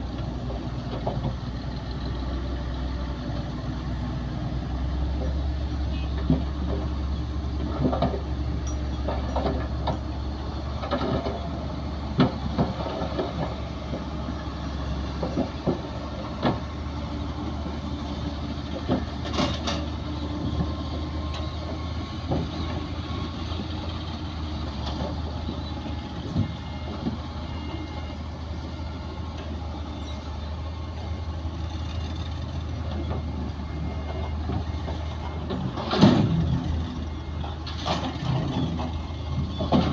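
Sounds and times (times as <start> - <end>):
bulldozer diesel engine running: 0.0 - 39.9
metallic clanks and knocks: 7.6 - 10.2, 34.4 - 36.7.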